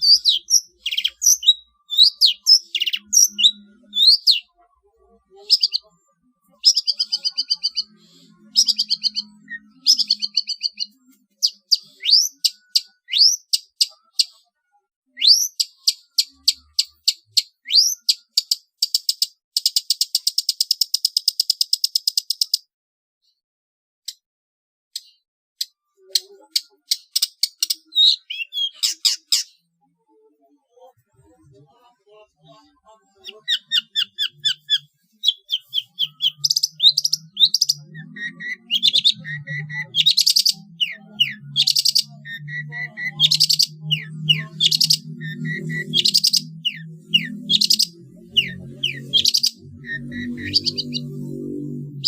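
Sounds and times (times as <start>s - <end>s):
buzzy bird trill: 0.0s - 14.5s, 15.1s - 22.5s, 25.7s - 29.6s, 32.4s - 52.0s
bird singing varied chirps: 0.0s - 22.7s, 25.0s - 52.0s.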